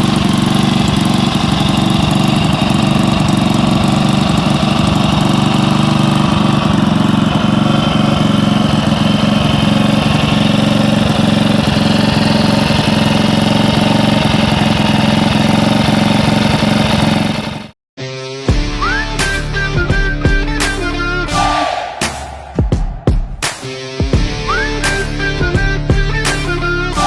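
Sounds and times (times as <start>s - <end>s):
motorcycle engine idling: 0.0s - 17.7s
guitar music: 18.0s - 22.4s, 23.4s - 27.0s.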